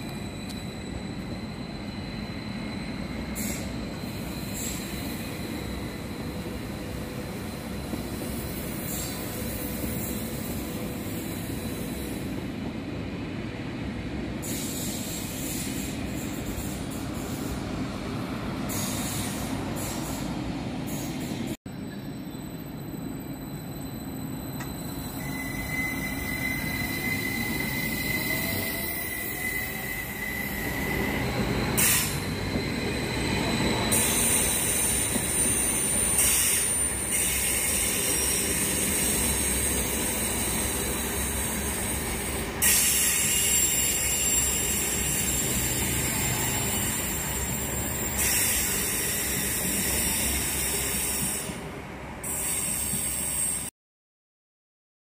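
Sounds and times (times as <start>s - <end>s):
thin high squeal: 23.3s - 50.8s
train wheels rolling on rails: 23.4s - 53.7s.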